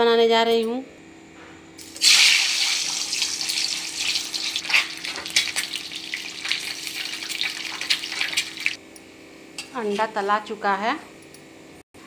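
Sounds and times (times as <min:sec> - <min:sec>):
eggs sizzling in hot oil: 0:01.8 - 0:08.8
oil popping and crackling: 0:01.9 - 0:08.8.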